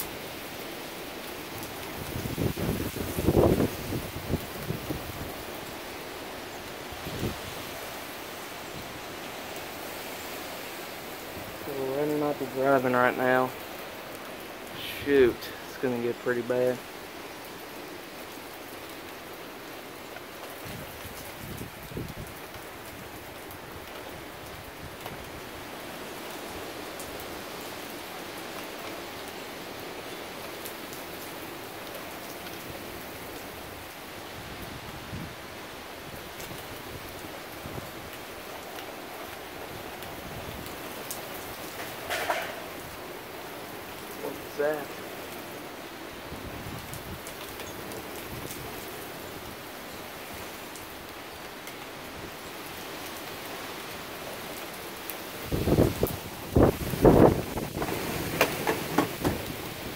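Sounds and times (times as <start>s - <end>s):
rain falling and splashing: 0.0s - 59.9s
sharp raindrop ticks: 46.8s - 49.6s.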